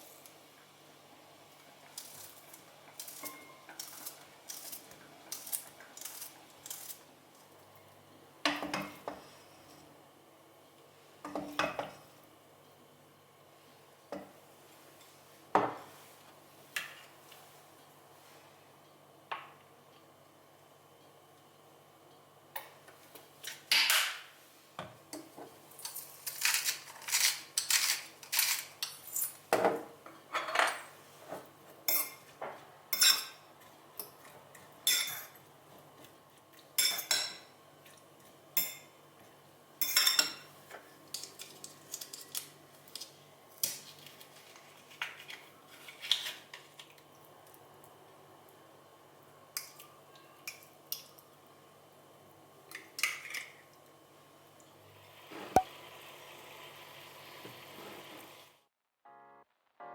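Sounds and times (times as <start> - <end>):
cutlery and dishes clinking: 2.9 - 7.0, 25.8 - 29.4, 34.0 - 35.4, 36.8 - 37.5, 39.8 - 40.5.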